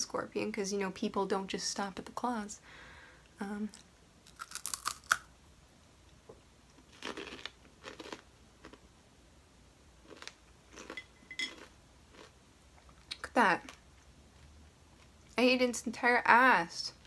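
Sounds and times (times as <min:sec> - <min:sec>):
crunchy chewing: 0:04.2 - 0:05.3, 0:06.7 - 0:08.8, 0:10.0 - 0:12.4.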